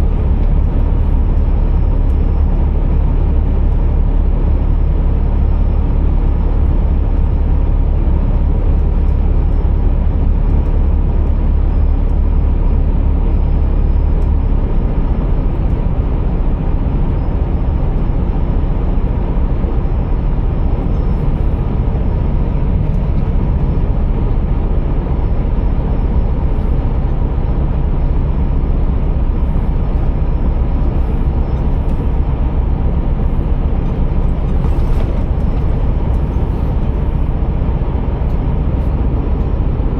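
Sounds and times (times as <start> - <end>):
road and tyre noise: 0.0 - 39.9
truck diesel engine running: 0.0 - 39.9.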